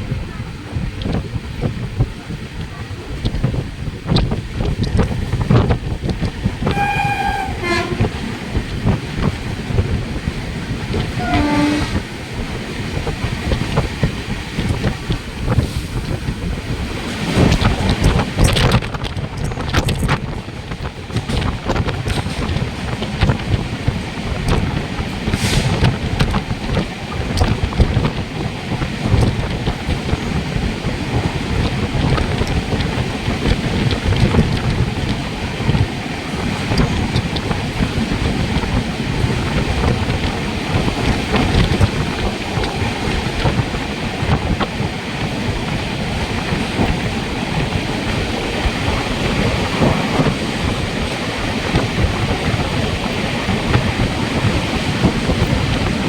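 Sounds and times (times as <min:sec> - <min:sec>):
moving train rumble: 0:00.0 - 0:56.0
wind buffeting microphone: 0:00.0 - 0:56.0.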